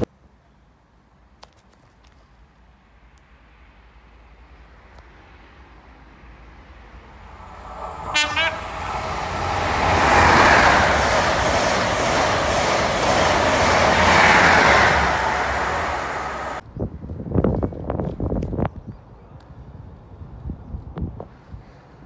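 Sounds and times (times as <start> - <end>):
train passing at speed: 3.0 - 16.6
train horn blast: 7.3 - 11.0.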